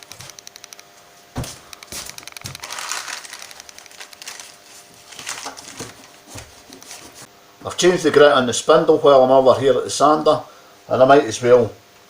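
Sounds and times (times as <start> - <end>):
even clicks: 0.0 - 0.9, 3.4 - 4.3.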